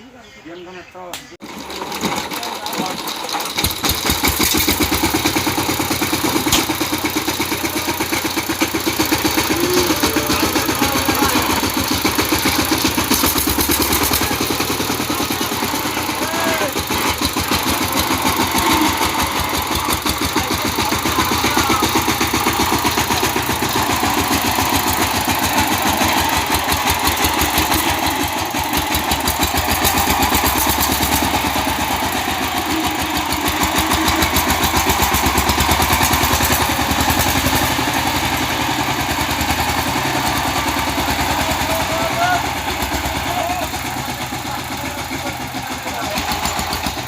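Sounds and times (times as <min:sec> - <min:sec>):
power tiller diesel engine running: 0:01.4 - 0:47.0.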